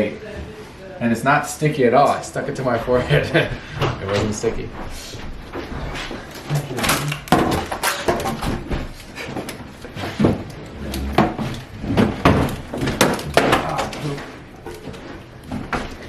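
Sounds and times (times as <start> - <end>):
plastic water bottles crinkling: 5.4 - 16.0.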